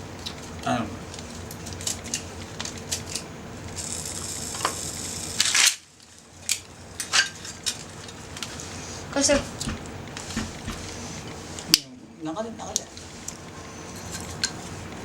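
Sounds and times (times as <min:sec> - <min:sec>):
hiss: 0:03.8 - 0:05.8.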